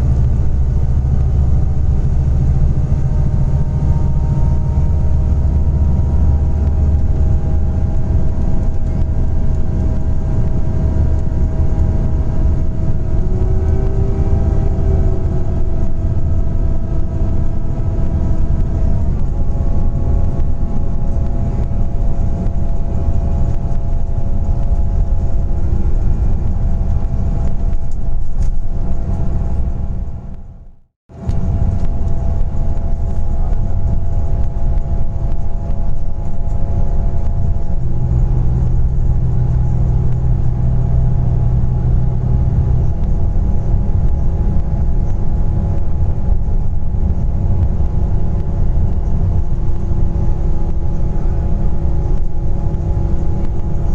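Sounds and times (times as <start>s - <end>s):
bus engine rumble: 0.0s - 53.9s
drivetrain whine: 0.0s - 53.9s.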